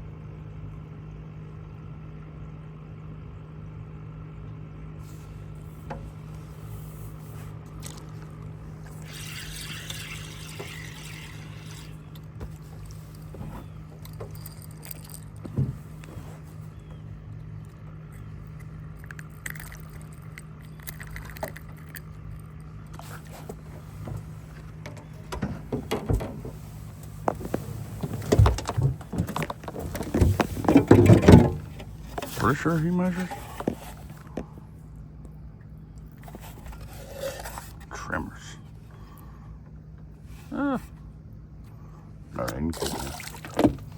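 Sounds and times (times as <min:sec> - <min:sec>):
steady low hum: 0:00.0 - 0:43.9
knocks thumps and rattles: 0:15.4 - 0:16.0, 0:23.5 - 0:26.6, 0:27.2 - 0:32.4.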